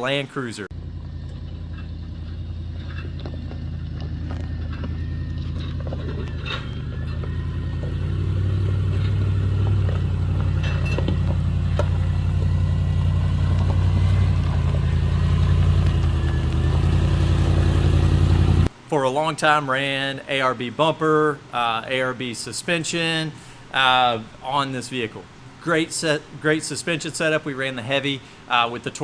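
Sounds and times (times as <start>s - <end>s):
vehicle engine running: 0.7s - 18.7s.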